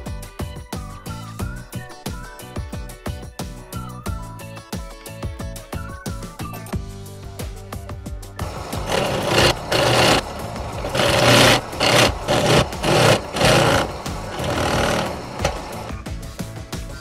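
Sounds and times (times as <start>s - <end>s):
drill press boring into wood: 8.4s - 16.0s.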